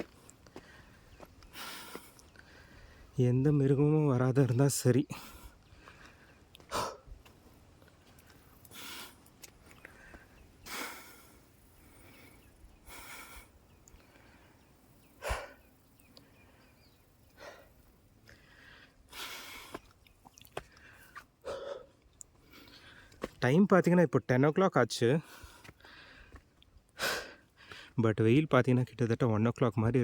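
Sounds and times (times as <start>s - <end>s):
man breathing hard: 0.0s - 3.2s, 5.1s - 7.2s, 8.1s - 19.9s, 20.6s - 23.2s, 25.2s - 28.0s.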